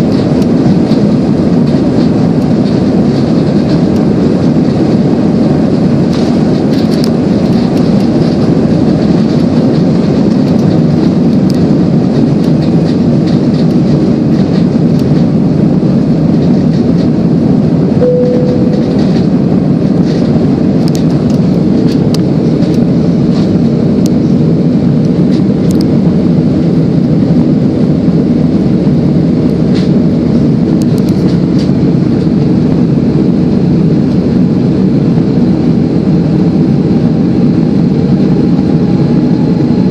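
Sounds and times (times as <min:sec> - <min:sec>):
jet engine cabin rumble: 0:00.0 - 0:39.9
short single tone: 0:18.0 - 0:19.3.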